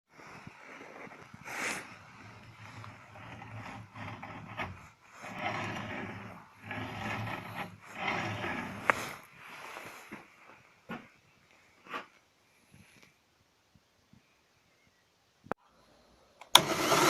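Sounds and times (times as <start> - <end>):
rough scraping strokes: 0.2 - 10.2.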